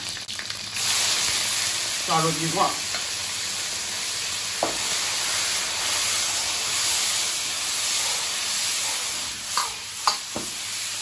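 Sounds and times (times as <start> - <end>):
chicken sizzling in hot oil: 0.0 - 11.0
metal ladle tapping wok: 9.5 - 10.5.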